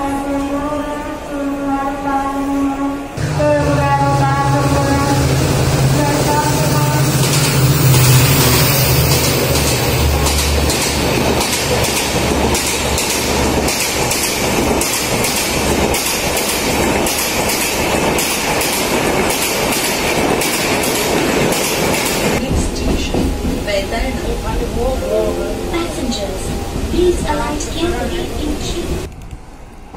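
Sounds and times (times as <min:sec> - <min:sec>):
low hum: 0:03.2 - 0:11.3
train wheels clacking over rail joints: 0:05.4 - 0:23.8.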